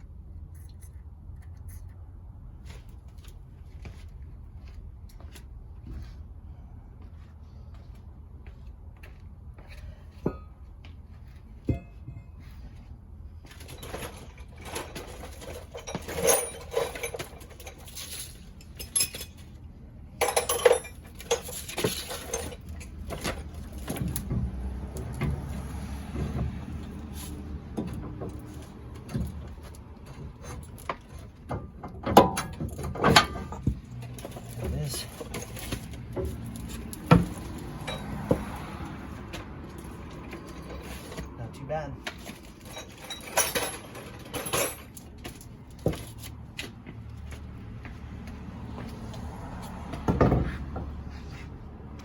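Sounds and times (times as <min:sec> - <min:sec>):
metal clinks and scraping: 0:00.3 - 0:02.2, 0:09.6 - 0:46.4.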